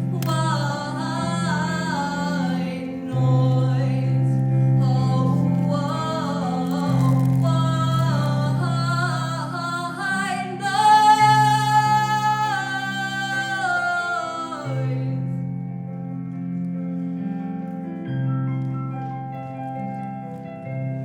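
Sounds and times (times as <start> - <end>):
woman singing: 0.0 - 15.5
instrumental accompaniment: 0.0 - 21.0.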